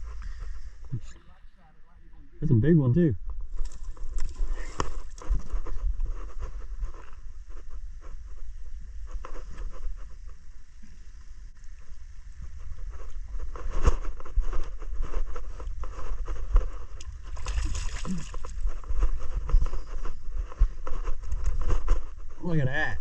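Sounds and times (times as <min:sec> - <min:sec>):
boat engine low rumble: 0:00.0 - 0:23.0
water sloshing against hull: 0:09.4 - 0:22.4.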